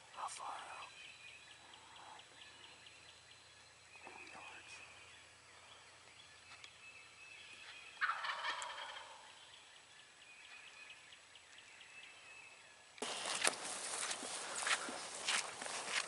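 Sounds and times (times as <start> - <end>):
turkey gobbling: 8.0 - 9.4
footsteps in dry leaves: 13.0 - 16.0.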